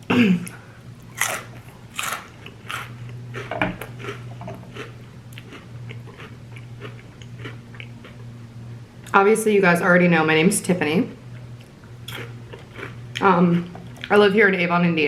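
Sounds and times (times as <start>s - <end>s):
crunching corn snacks: 1.1s - 8.2s, 12.1s - 13.0s.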